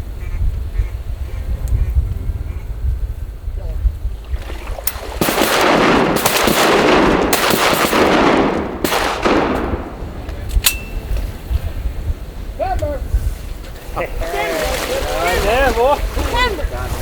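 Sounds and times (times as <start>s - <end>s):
shotguns firing: 4.8s - 11.1s.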